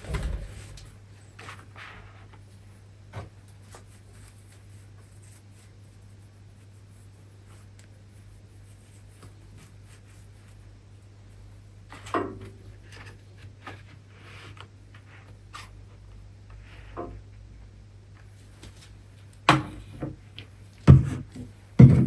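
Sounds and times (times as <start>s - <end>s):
light rubbing: 0.0s - 1.0s
low steady hum: 0.0s - 1.5s.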